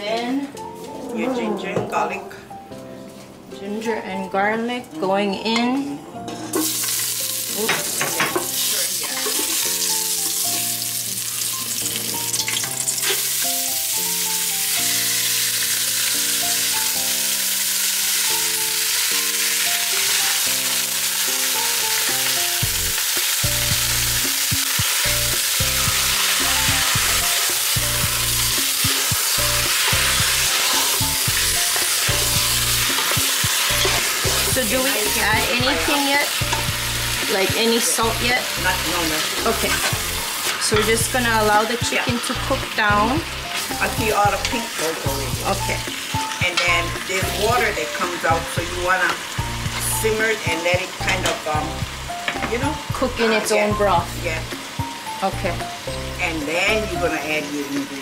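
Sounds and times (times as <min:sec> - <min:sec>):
light background music: 0:00.0 - 0:58.0
garlic and ginger sizzling in oil: 0:06.5 - 0:58.0
bass line: 0:25.1 - 0:28.6, 0:34.3 - 0:36.0.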